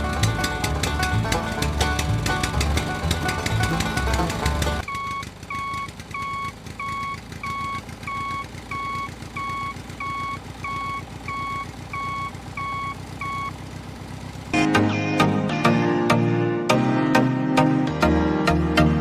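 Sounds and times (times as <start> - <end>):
music: 0.0 - 4.8, 14.6 - 19.0
low engine rumble: 0.0 - 15.0
vehicle reversing alarm beeping: 4.8 - 13.6.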